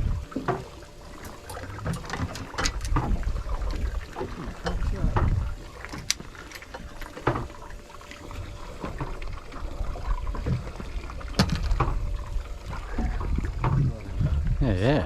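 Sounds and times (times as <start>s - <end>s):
water lapping against boat hull: 0.0s - 15.0s
sharp knocks on hull: 11.4s - 12.0s.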